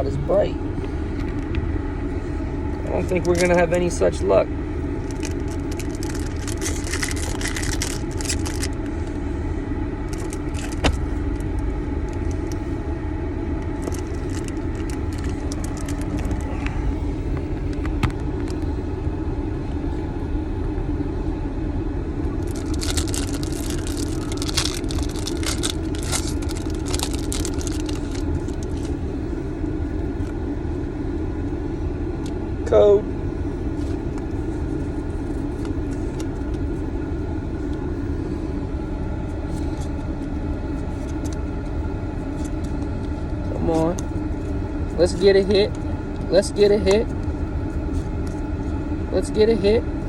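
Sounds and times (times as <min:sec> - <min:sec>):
car idling from inside: 0:00.0 - 0:50.0
foil wrapper crinkling: 0:03.0 - 0:03.6, 0:05.0 - 0:08.9, 0:10.1 - 0:12.7, 0:13.8 - 0:16.6, 0:22.4 - 0:29.0.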